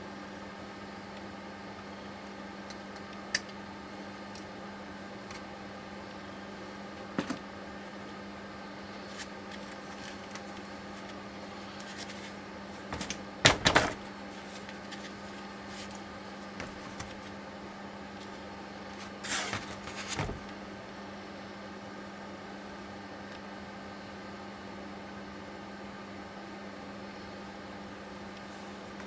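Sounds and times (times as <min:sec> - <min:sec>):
steady low hum: 0:00.0 - 0:29.0
parts rattling: 0:12.9 - 0:15.2, 0:16.6 - 0:17.3, 0:19.2 - 0:20.5.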